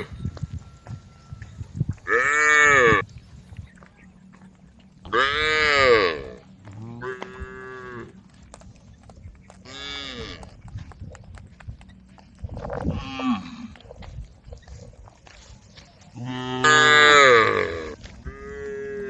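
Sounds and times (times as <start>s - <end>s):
cattle mooing: 2.0s - 3.1s, 4.3s - 8.3s, 9.6s - 10.5s, 12.6s - 13.9s, 16.2s - 19.0s.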